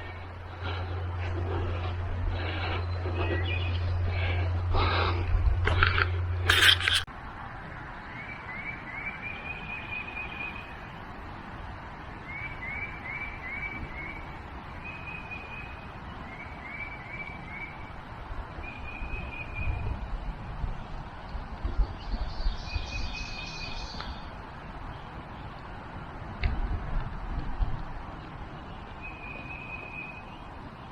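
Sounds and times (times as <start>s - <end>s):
songbird singing: 0.0s - 4.6s, 8.0s - 11.1s, 12.2s - 18.0s, 18.6s - 20.0s, 21.7s - 25.6s, 28.0s - 30.9s
low rumbles: 0.0s - 7.1s
steady outdoor hiss: 0.0s - 30.9s.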